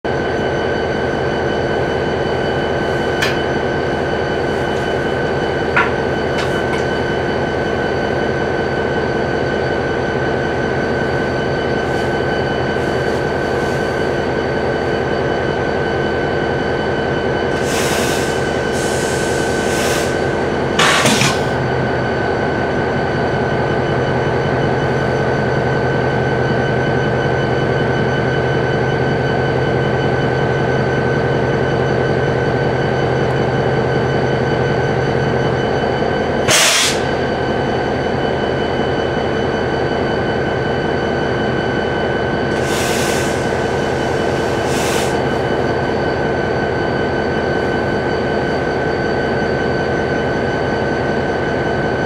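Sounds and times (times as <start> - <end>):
diesel locomotive rumble: 0.0 - 52.0
high whine: 0.1 - 52.0.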